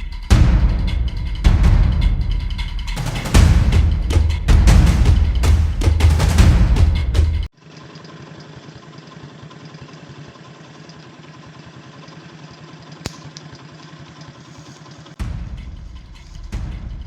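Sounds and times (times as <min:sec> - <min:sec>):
small engine idling: 0:07.5 - 0:16.6
sharp click: 0:13.0 - 0:13.5.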